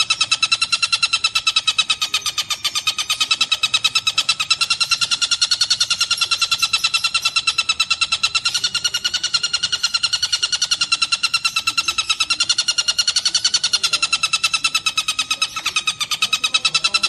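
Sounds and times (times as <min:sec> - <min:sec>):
kingfisher trilling call: 0:00.0 - 0:17.0.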